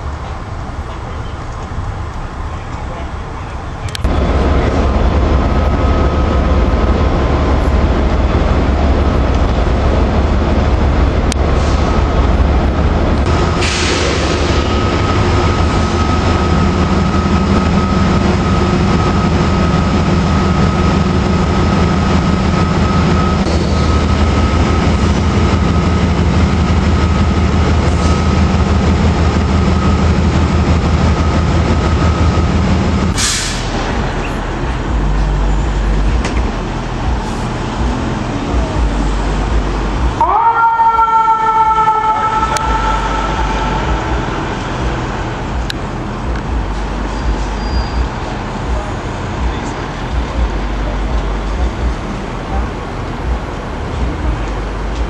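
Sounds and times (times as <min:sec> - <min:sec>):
train rumbling on rails: 0:00.0 - 0:55.0
brief hiss: 0:33.2 - 0:33.8.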